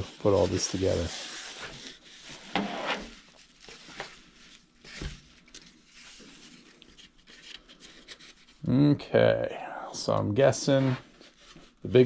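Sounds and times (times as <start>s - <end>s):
foam and packaging rustling: 0.0s - 8.6s.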